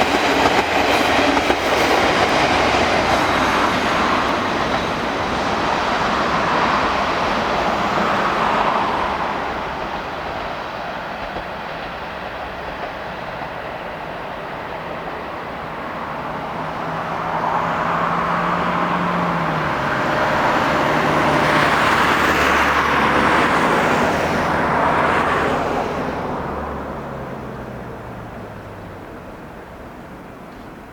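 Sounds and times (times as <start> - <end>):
train wheels on track: 0.0 - 30.9
diesel engine drone: 15.0 - 30.1.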